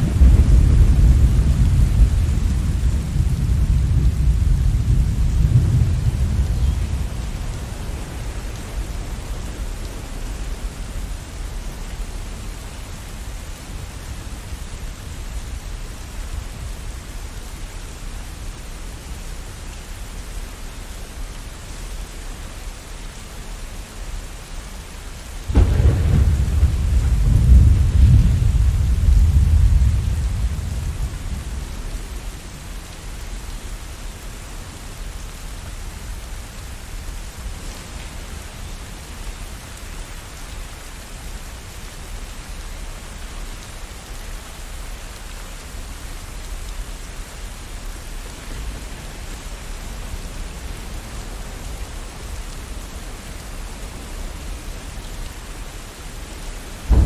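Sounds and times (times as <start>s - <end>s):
thunder crack and rumble: 0.0s - 10.8s, 25.4s - 32.5s, 56.8s - 57.0s
steady rainfall: 0.0s - 57.0s.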